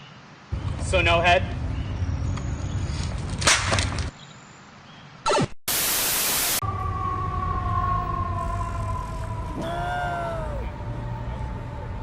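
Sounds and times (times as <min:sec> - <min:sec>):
static hiss burst: 0:05.3 - 0:06.6.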